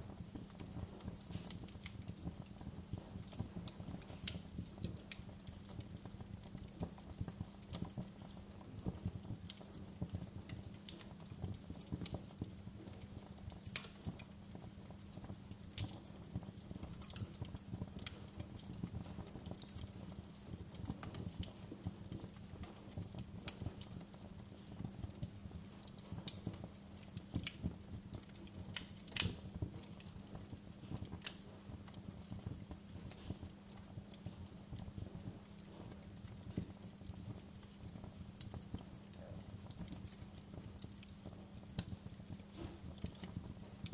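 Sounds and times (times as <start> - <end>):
low fire rumble: 0.0 - 43.9
wood fire crackling and popping: 0.0 - 43.9.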